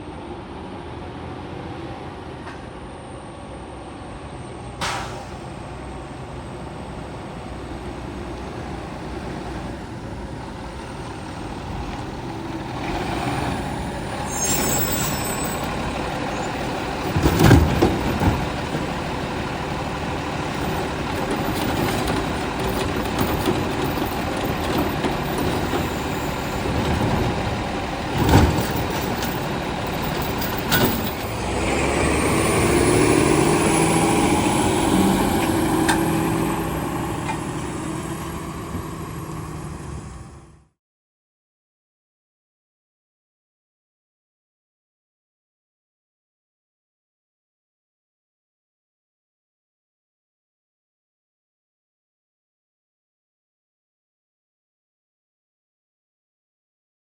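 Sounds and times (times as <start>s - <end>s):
garbage truck engine: 4.6s - 40.7s
high squeal: 14.1s - 17.2s.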